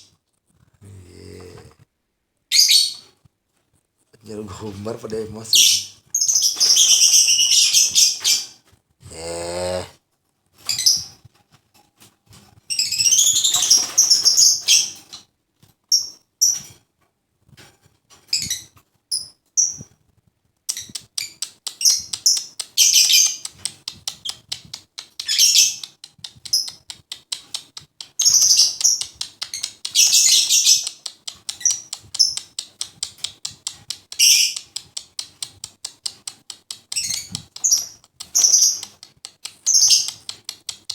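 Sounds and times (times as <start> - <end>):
lovebird chirping: 2.5 - 3.0, 5.6 - 8.5, 28.2 - 31.0, 34.2 - 34.6, 36.9 - 38.9, 39.6 - 40.4.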